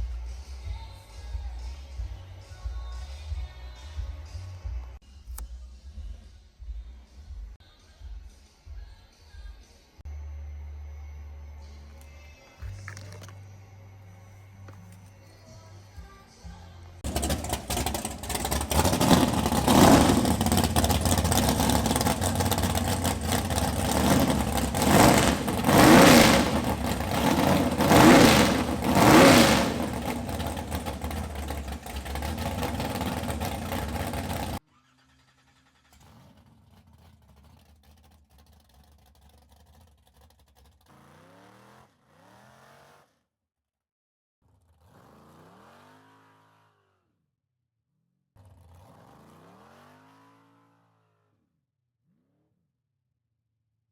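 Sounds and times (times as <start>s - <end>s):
vee eight engine revving: 17.0s - 34.6s.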